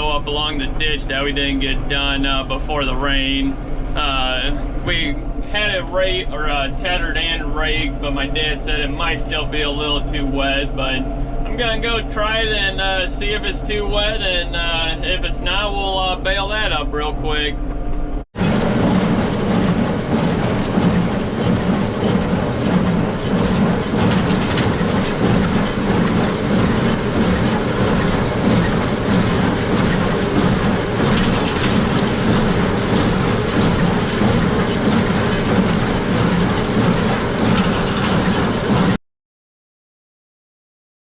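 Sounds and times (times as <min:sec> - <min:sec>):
tractor and baler clattering: 0:00.0 - 0:17.4, 0:18.4 - 0:39.0.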